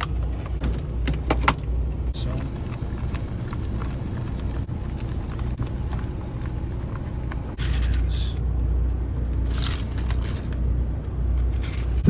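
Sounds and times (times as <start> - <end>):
low hum: 0.0 - 12.0
salsa simmering: 2.2 - 7.6.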